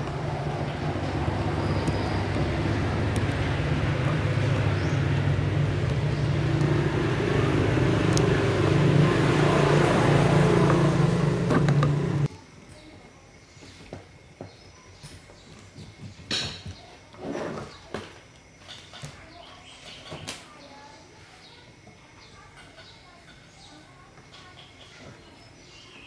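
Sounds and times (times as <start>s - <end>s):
broad rushing noise: 0.0s - 12.3s
machine humming: 0.0s - 12.3s.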